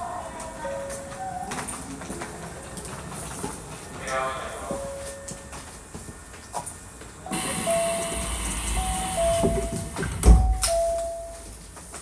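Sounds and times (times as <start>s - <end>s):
level-crossing warning bell: 4.6s - 5.8s, 7.3s - 11.8s
electric train running: 7.3s - 11.0s.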